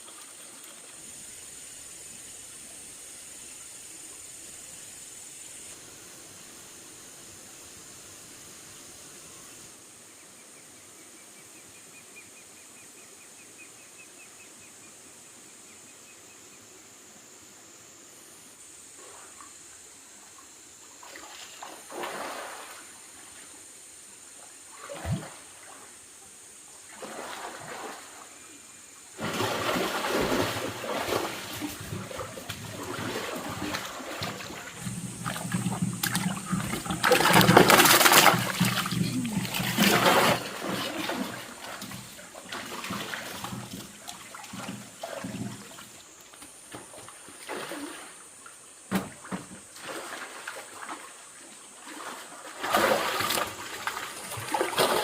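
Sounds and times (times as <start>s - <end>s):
water splashing and trickling: 0.0s - 2.4s, 20.2s - 23.6s, 24.4s - 26.0s, 26.8s - 28.5s, 29.1s - 55.0s.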